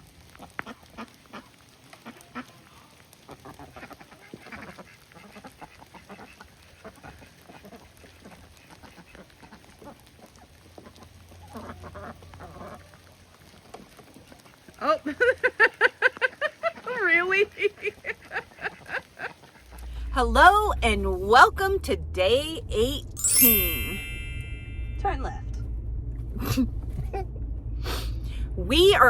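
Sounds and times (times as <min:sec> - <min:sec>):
ducks quacking: 0:03.2 - 0:13.0, 0:15.8 - 0:20.1.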